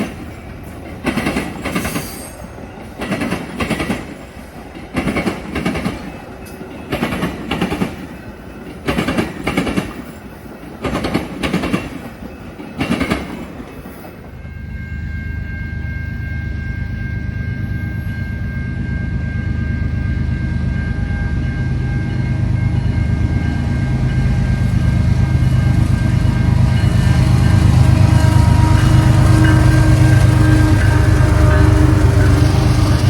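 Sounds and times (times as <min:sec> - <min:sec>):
train wheels clacking over rail joint: 0:00.0 - 0:14.4.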